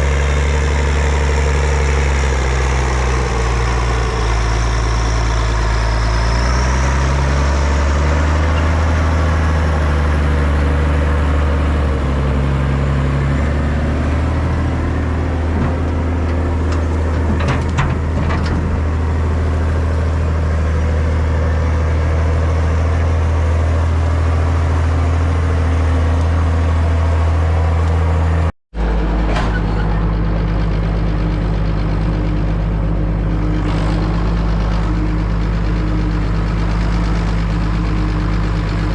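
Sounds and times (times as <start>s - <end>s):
tractor diesel engine running: 0.0s - 38.9s
turbo whine: 28.8s - 38.9s.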